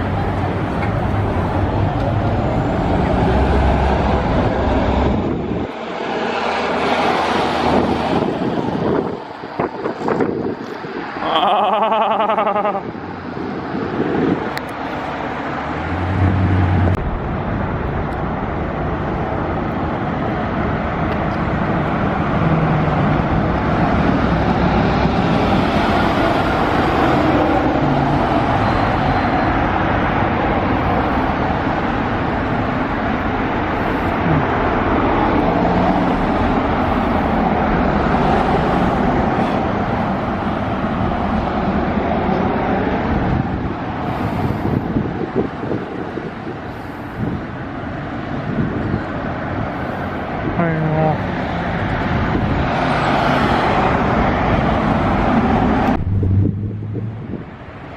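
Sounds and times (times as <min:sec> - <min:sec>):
vehicle running: 0:00.0 - 0:57.9.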